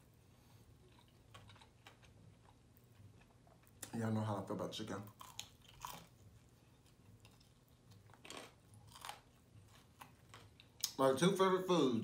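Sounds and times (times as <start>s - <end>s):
crunching fried chicken: 4.9s - 11.0s.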